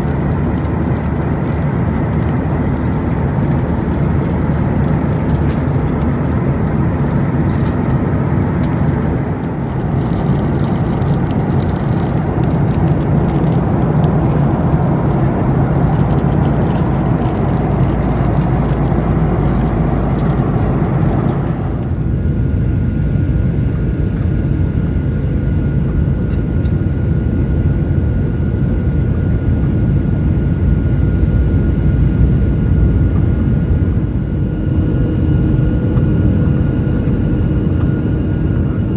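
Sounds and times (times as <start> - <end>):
airliner cabin rumble: 0.0 - 38.9
faint steady whine: 0.0 - 38.9.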